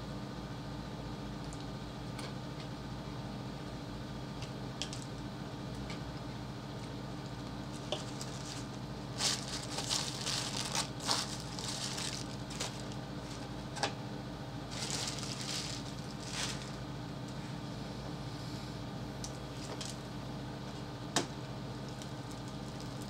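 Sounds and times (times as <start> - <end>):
steady low hum: 0.0 - 23.0
crunchy eating noises: 6.8 - 14.0, 14.6 - 17.0, 21.8 - 23.0
paper wrapper crinkling: 7.7 - 13.6, 14.7 - 16.8.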